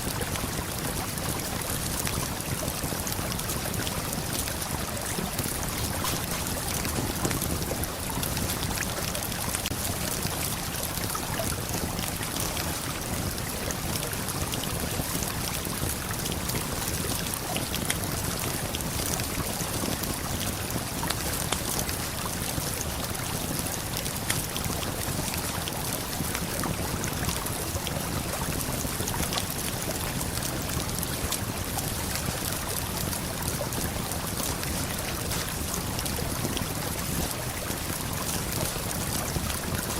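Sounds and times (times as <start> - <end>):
campfire crackling and popping: 3.2 - 12.0.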